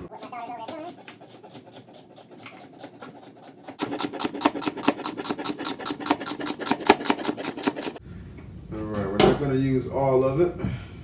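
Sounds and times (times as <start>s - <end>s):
knife chopping vegetables: 0.1s - 8.0s.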